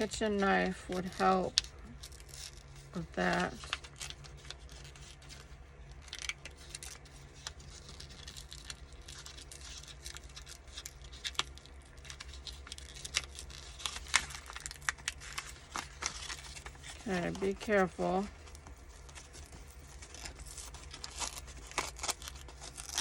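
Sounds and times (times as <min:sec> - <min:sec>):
paper crackling and tearing: 0:00.0 - 0:23.0
paper envelope peeled apart: 0:00.0 - 0:23.0.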